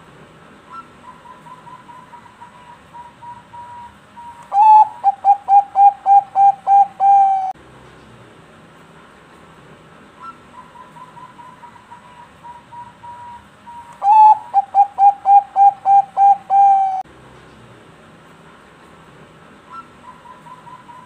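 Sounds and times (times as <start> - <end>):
dove cooing: 0.7 - 7.6, 14.0 - 17.0.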